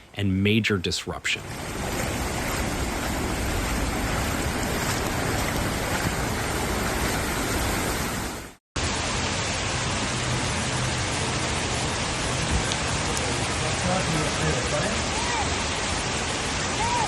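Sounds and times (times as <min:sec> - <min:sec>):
rushing floodwater hiss: 0:01.3 - 0:17.0.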